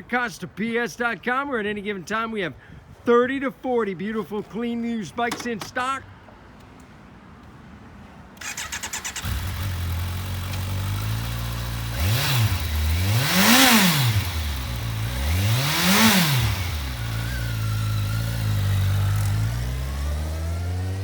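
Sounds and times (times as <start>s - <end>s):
motorcycle starter cranking: 8.4s - 19.4s
motorcycle engine idling and revving: 8.4s - 21.0s.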